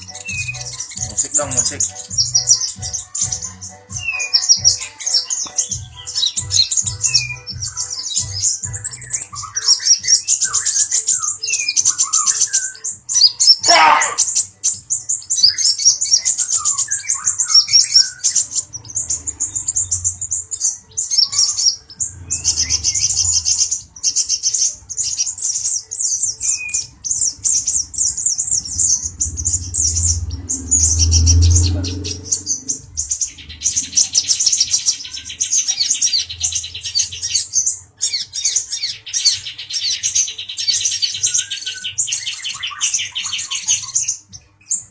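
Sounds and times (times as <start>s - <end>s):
sunbird twittering song: 0.0s - 44.9s
low rumble: 22.0s - 23.8s, 27.0s - 34.4s.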